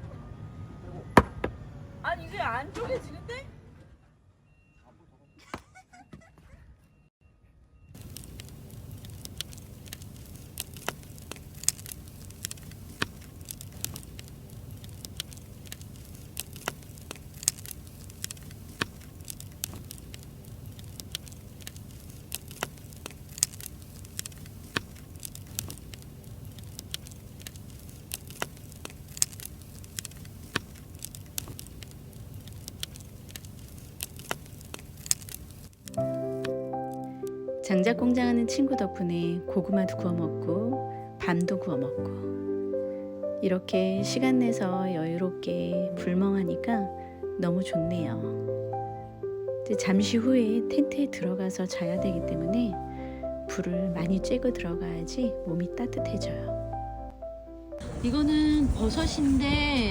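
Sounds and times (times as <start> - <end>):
campfire crackling and popping: 7.9 - 40.6, 41.2 - 41.8, 48.7 - 56.4, 57.8 - 59.9.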